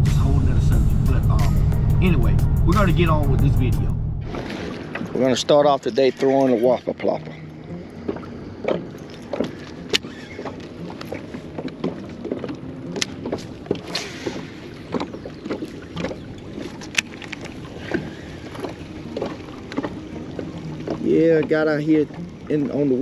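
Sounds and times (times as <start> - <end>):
low rumble of wind and water: 0.0 - 23.0.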